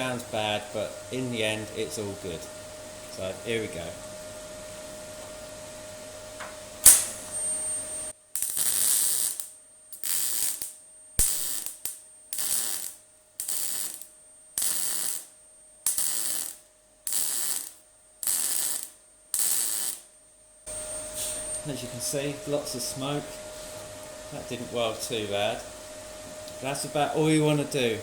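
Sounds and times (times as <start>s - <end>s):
welder humming: 0.0s - 20.1s, 20.7s - 28.0s
welder click: 6.4s - 7.8s
welding arc bursts: 6.8s - 20.1s.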